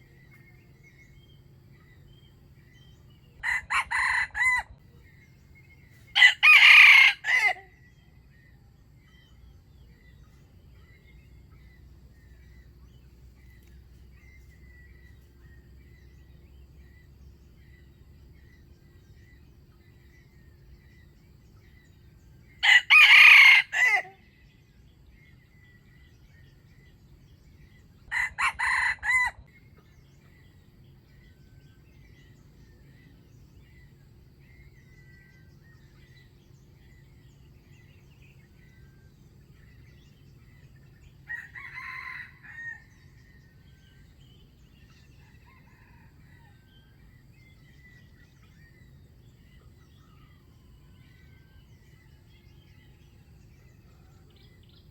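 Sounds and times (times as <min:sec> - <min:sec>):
rooster crowing: 0:03.4 - 0:04.8, 0:06.1 - 0:07.8, 0:22.6 - 0:24.2, 0:28.1 - 0:29.5, 0:41.2 - 0:43.5, 0:45.2 - 0:47.1.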